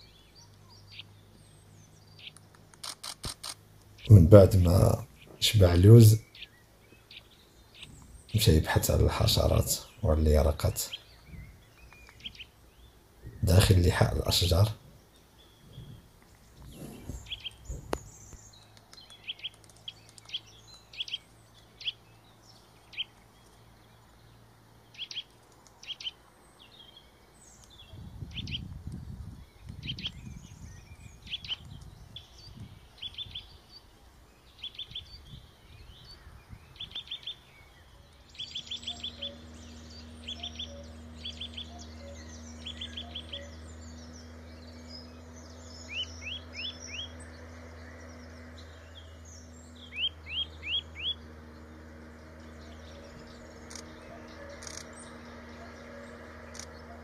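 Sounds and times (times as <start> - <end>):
steady low hum: 0.0 - 57.0
wild birds chirping: 0.0 - 57.0.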